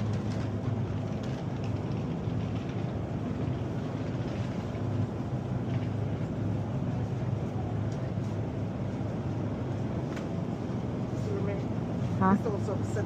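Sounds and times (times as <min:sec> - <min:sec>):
low mechanical hum: 0:00.0 - 0:13.0
rumbling background noise: 0:00.0 - 0:13.0.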